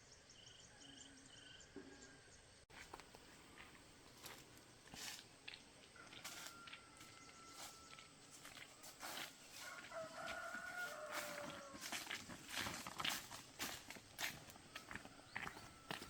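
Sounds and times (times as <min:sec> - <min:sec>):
rooster crowing faintly: 0:06.0 - 0:12.8.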